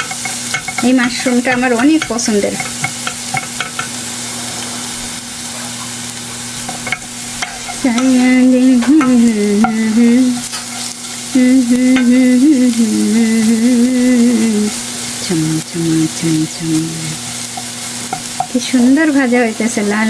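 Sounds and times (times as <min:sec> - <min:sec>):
utensil clicking against pan: 0:00.0 - 0:04.0, 0:06.6 - 0:11.0
mushrooms sizzling in oil: 0:00.0 - 0:20.0
woman humming: 0:07.8 - 0:10.5, 0:11.3 - 0:17.3.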